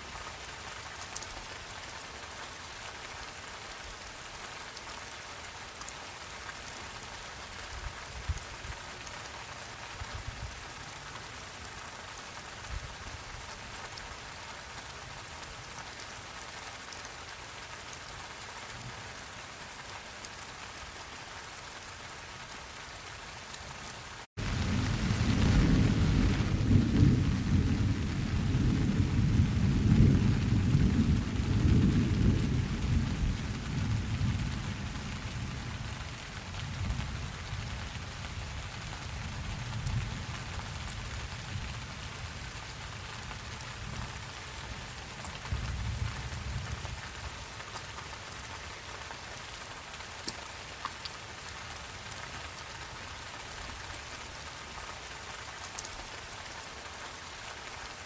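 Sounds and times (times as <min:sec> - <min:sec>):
steady rain: 0:00.0 - 0:58.0
thunder rumbling: 0:24.4 - 0:35.9
dripping water ticks: 0:50.1 - 0:51.2.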